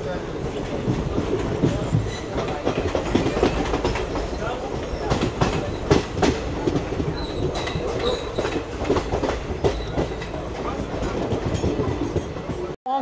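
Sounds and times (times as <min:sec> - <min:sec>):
train wheels clattering over rail joints: 0:00.0 - 0:12.8
high wheel squeal: 0:07.1 - 0:08.6.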